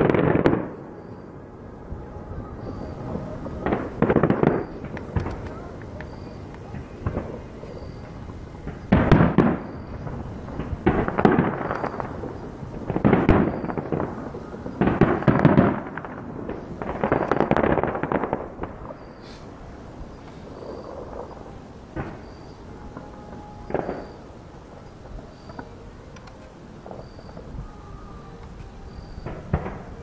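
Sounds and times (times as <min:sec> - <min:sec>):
distant fireworks booms: 0:00.0 - 0:30.0
fireworks crackling trails: 0:00.0 - 0:30.0.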